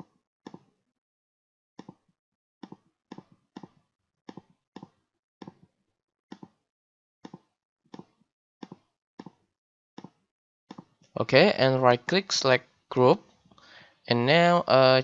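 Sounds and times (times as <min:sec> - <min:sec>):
computer mouse clicking: 0:07.3 - 0:09.4.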